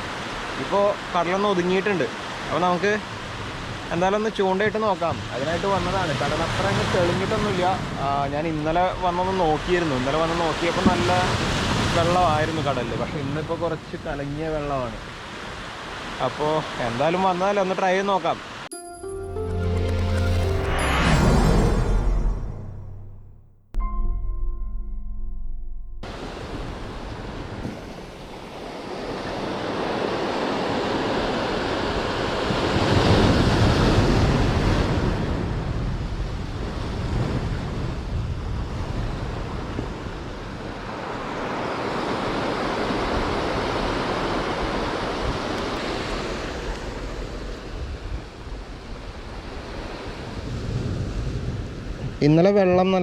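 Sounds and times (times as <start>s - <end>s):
surf breaking on shore: 0.0s - 17.1s
wind on microphone: 26.1s - 52.2s.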